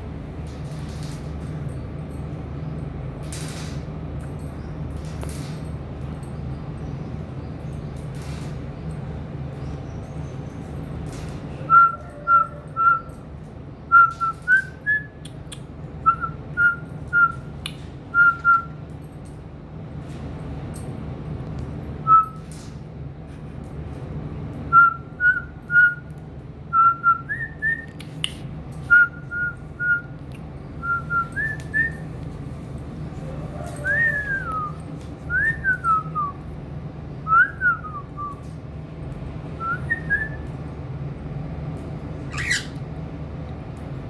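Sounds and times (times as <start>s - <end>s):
cockatiel whistling: 42.3s - 42.8s.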